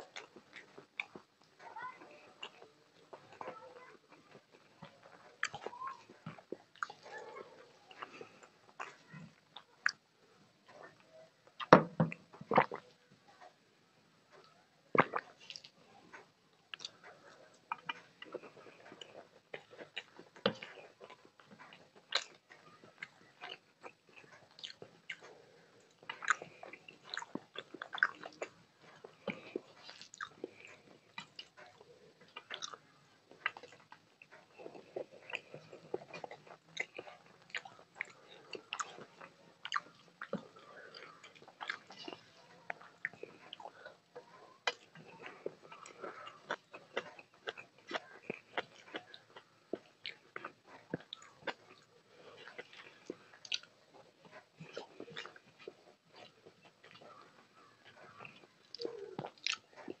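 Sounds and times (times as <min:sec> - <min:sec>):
person chewing wetly: 0:00.0 - 0:13.0, 0:14.4 - 1:00.0
fingers squishing food on plate: 0:14.3 - 1:00.0.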